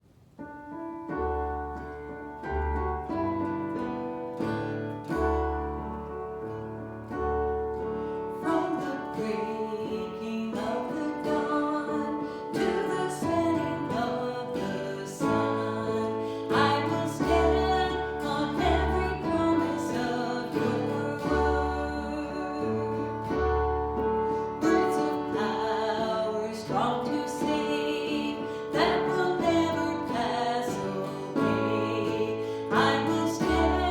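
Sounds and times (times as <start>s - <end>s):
music with guitar and keyboard: 0.6s - 33.9s
person singing: 8.4s - 33.9s.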